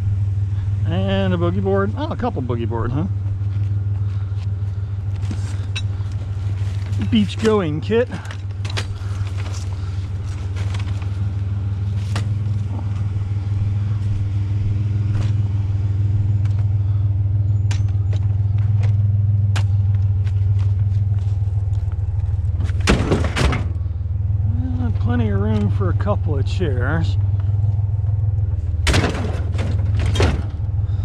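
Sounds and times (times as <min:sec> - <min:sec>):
vehicle engine idling: 0:00.0 - 0:31.0
metal clatter: 0:28.7 - 0:30.7.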